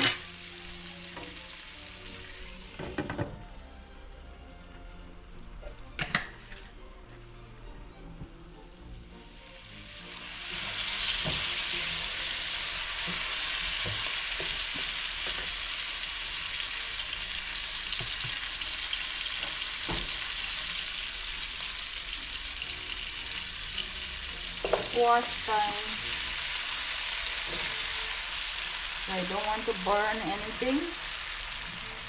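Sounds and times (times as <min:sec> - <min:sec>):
onion sizzling in oil: 0:00.0 - 0:05.6, 0:08.9 - 0:32.0
utensil knocking against pan: 0:24.6 - 0:25.0.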